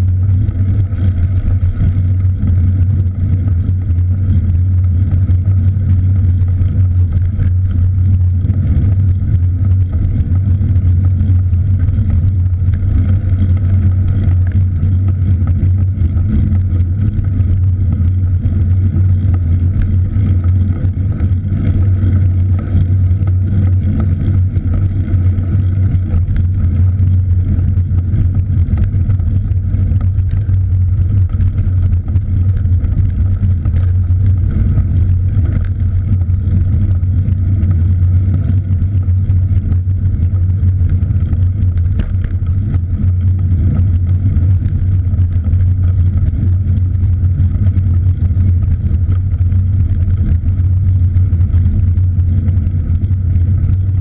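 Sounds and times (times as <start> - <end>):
wind noise on microphone: 0.0 - 54.0.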